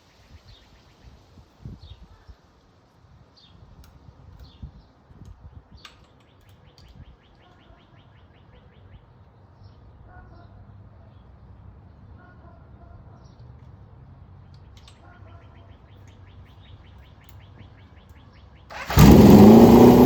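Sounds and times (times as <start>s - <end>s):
small birds chirping: 3.4s - 9.8s, 14.6s - 20.0s.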